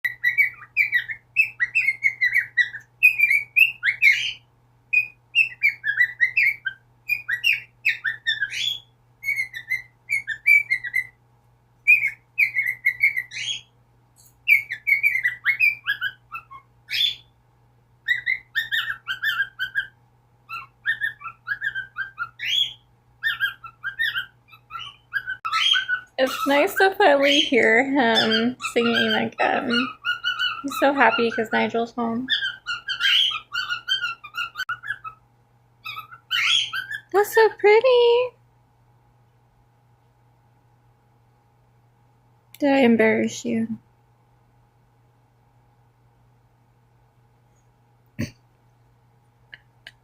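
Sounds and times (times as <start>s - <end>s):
cockatiel whistling: 0.0s - 11.2s, 11.8s - 13.7s, 14.5s - 17.3s, 18.0s - 26.1s, 28.2s - 31.5s, 32.3s - 35.2s, 35.8s - 37.1s.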